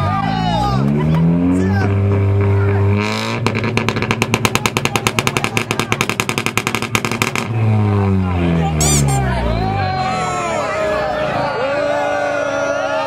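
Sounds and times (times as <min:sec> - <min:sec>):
car engine at steady revs: 0:00.1 - 0:09.7.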